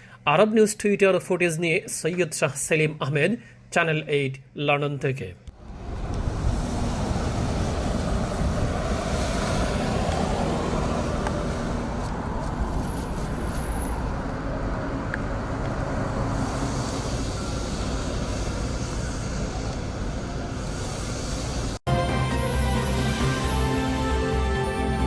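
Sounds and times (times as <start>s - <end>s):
wind buffeting microphone: 5.5s - 20.1s
road traffic rumble: 5.5s - 25.0s.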